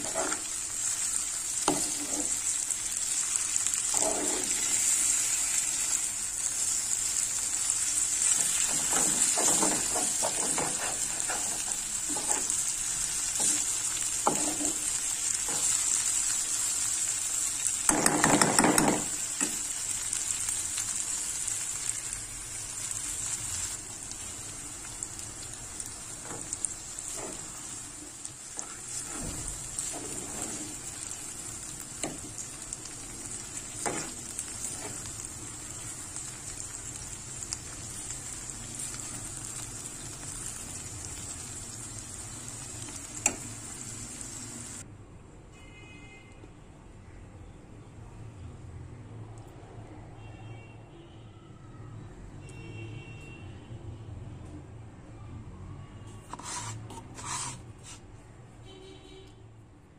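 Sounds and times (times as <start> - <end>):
metal spoon scraping a pan: 0.0 - 0.6, 1.6 - 2.5, 3.9 - 5.2, 8.3 - 12.7, 13.3 - 15.8, 28.5 - 30.9, 33.8 - 35.1, 56.3 - 58.0
vegetables sizzling in a pan: 0.0 - 44.8.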